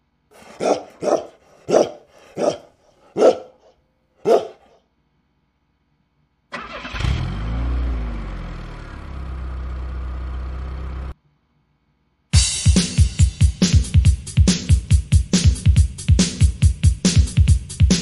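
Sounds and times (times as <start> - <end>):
dog barking: 0.4 - 4.8
car engine starting and revving: 6.6 - 11.2.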